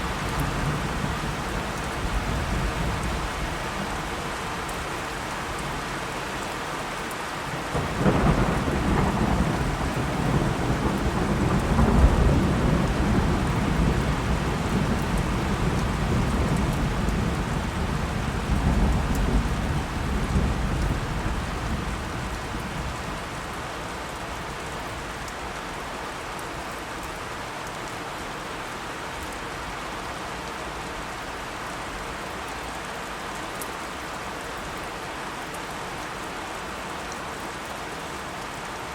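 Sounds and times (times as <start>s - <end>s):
steady rain: 0.0s - 38.9s
thunder rumbling: 7.7s - 23.3s.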